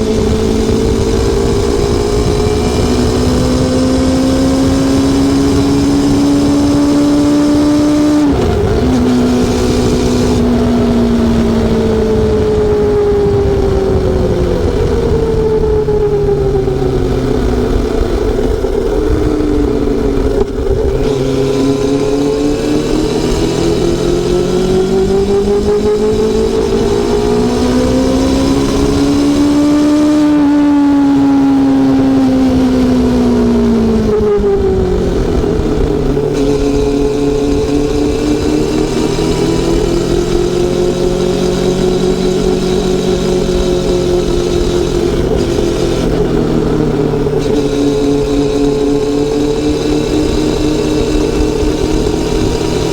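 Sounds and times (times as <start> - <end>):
motorcycle engine and exhaust: 0.0 - 52.9.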